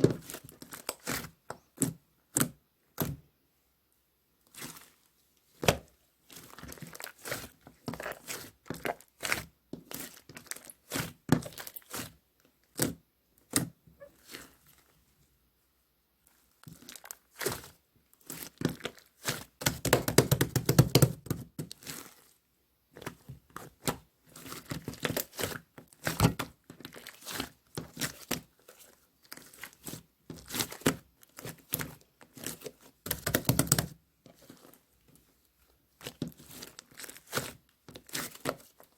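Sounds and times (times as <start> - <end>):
slime squished by hand: 16.4 - 22.4.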